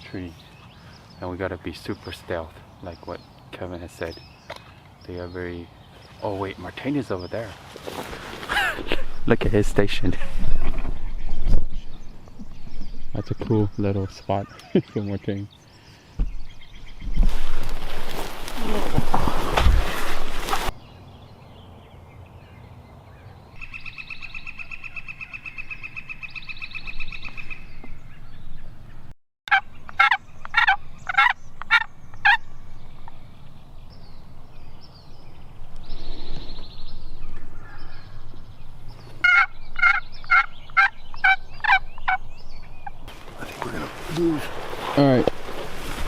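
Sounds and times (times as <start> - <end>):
turkey yelps: 29.5 - 32.4, 39.2 - 42.2.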